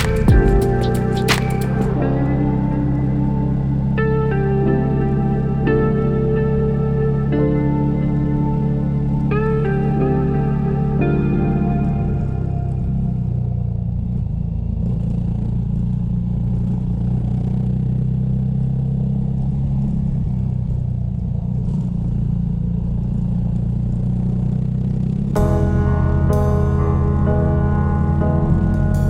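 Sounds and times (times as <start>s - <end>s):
motorcycle engine humming: 0.0s - 17.6s.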